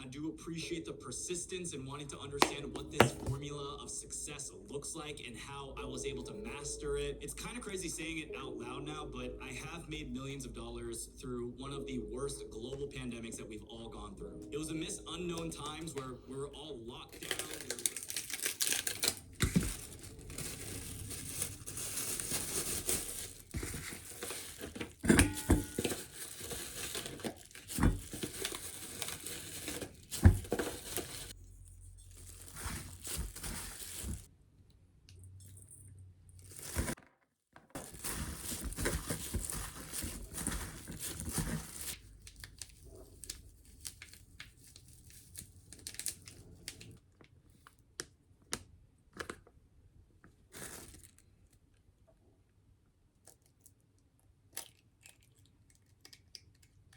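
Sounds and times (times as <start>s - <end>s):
crinkling and rustling: 2.4s - 3.5s, 17.0s - 34.3s, 35.4s - 49.5s, 50.2s - 51.7s.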